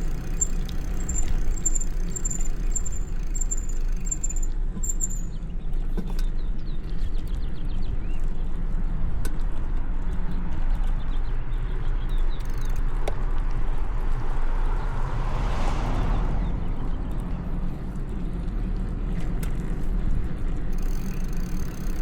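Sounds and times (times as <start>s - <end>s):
sharp ticks: 0.0s - 5.3s, 12.1s - 13.4s, 20.6s - 22.0s
tyre and road rumble: 0.0s - 22.0s.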